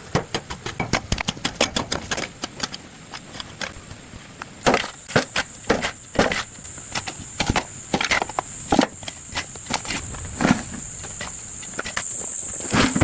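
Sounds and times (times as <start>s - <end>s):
knocks and scuffs from manual work: 4.6s - 13.0s
high insect buzz: 5.0s - 13.0s.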